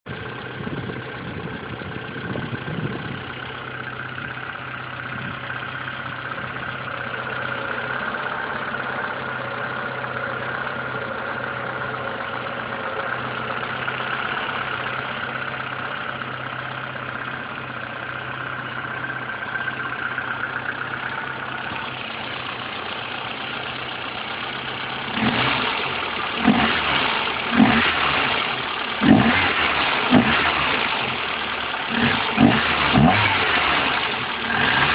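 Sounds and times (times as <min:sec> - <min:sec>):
car engine idling: 0:00.0 - 0:34.9
engine throttle revs: 0:25.0 - 0:34.9.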